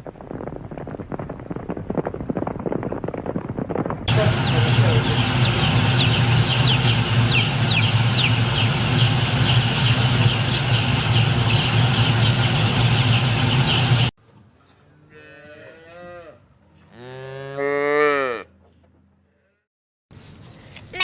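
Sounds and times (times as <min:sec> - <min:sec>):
low hum: 0:00.0 - 0:14.1
cow mooing: 0:14.9 - 0:18.6, 0:19.3 - 0:19.7.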